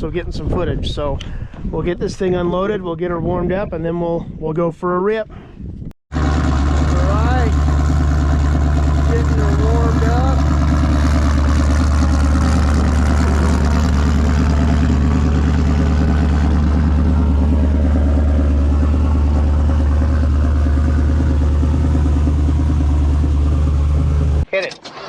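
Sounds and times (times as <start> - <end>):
truck engine idling: 6.1 - 24.5.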